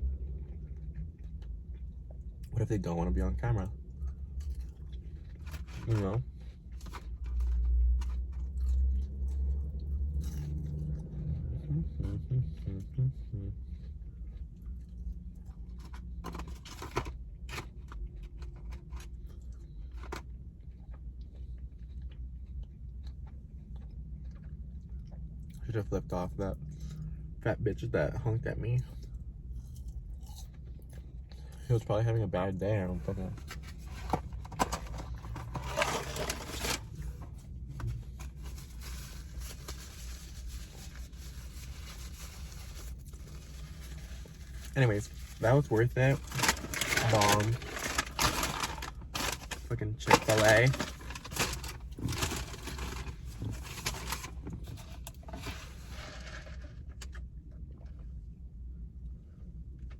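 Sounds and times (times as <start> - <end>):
steady low hum: 0.0 - 59.9
person chewing food: 3.8 - 5.7, 6.3 - 16.2, 17.8 - 25.6, 28.9 - 31.7
crunchy rustling noises: 4.4 - 8.8, 33.0 - 57.2.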